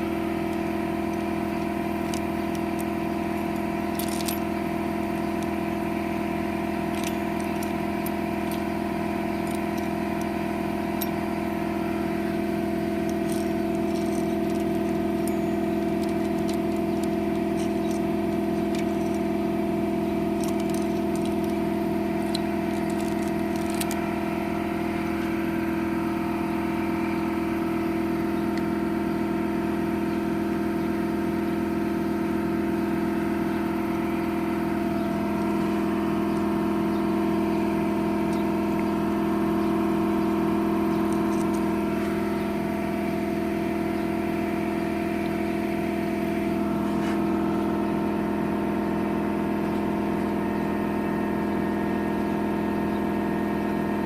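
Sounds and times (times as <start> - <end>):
metallic clinks and rattles: 0.0 - 29.0, 33.9 - 43.4
mechanical engine hum: 0.0 - 54.0.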